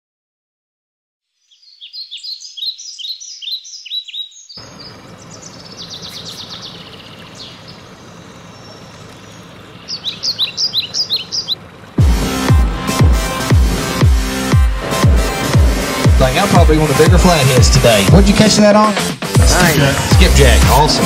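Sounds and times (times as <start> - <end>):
songbird singing with trill: 1.3 - 12.0
low outdoor rumble and hiss: 4.6 - 12.0.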